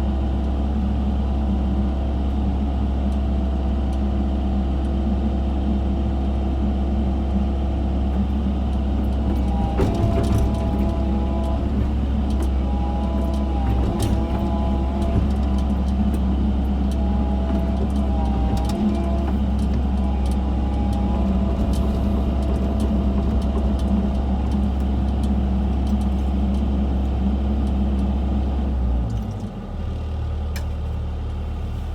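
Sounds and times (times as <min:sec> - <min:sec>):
excavator diesel engine running: 0:00.0 - 0:31.9
sharp clicks and knocks: 0:09.0 - 0:26.6.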